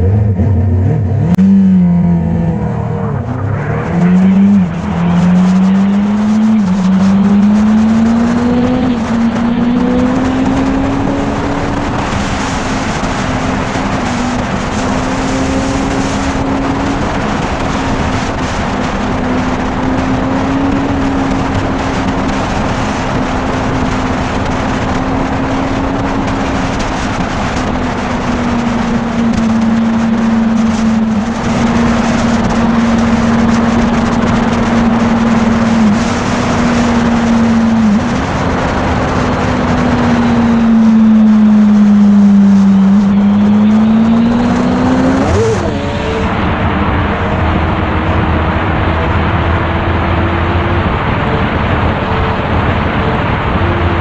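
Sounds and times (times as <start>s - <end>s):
motorcycle engine: 0.0s - 54.0s
wind and road noise: 0.0s - 54.0s.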